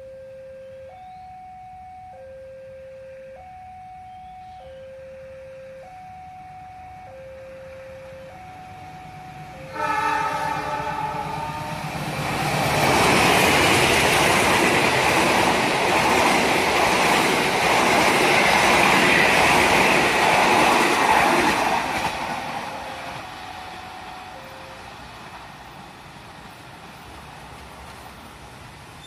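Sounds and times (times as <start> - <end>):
train wheels running on rails: 7.6 - 29.0
locomotive horn: 9.5 - 12.1.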